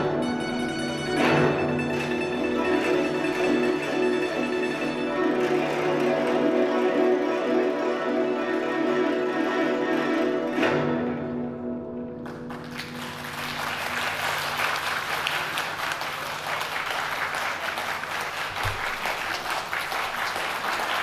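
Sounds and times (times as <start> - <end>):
audience applause: 2.7 - 6.8, 12.2 - 21.0.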